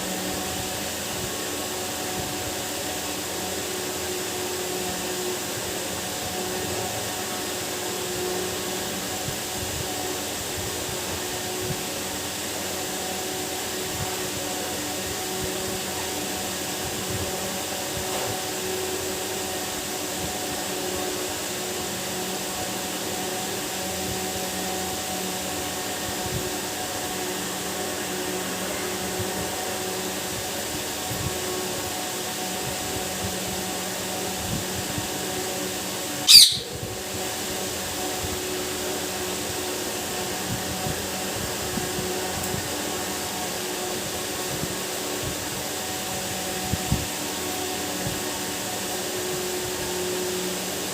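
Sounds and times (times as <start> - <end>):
low electrical hum: 0.0 - 50.9
parrot shrill call: 36.2 - 36.8.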